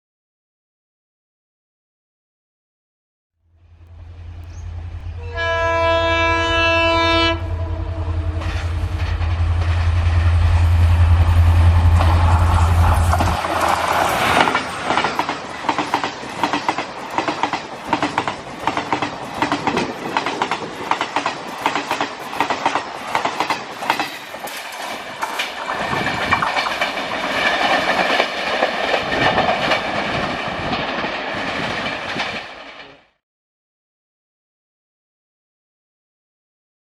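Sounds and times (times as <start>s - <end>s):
high ringing tone of train: 3.5s - 33.1s
train wheels clacking over rail joints: 11.9s - 33.0s.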